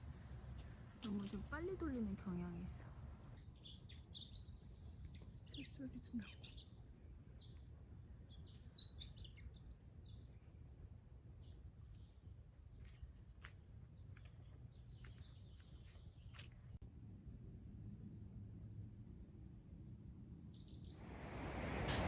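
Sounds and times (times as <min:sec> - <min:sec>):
low background rumble: 0:00.0 - 0:05.0
small birds chirping: 0:00.0 - 0:16.8, 0:19.0 - 0:22.0.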